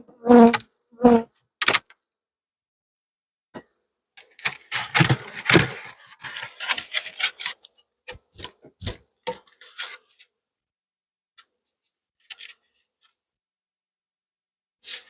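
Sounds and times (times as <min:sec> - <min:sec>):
sharp clicks and short scrapes: 0:04.2 - 0:10.3
scraping and rubbing of beehive parts: 0:04.4 - 0:10.2.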